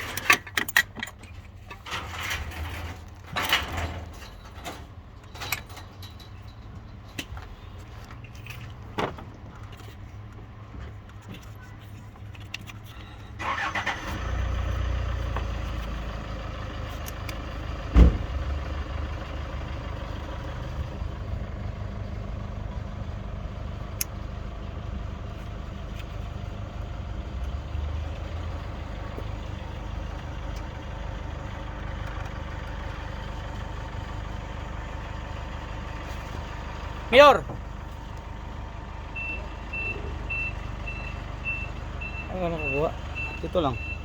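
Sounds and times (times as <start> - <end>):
car engine starting and idling: 0.0 - 44.0.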